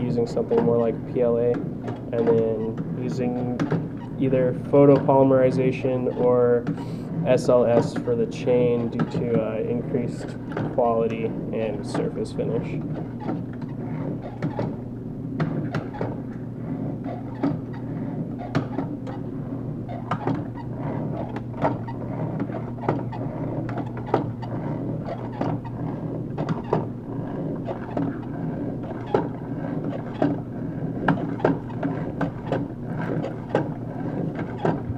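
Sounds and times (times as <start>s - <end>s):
steady hum: 0.0s - 34.9s.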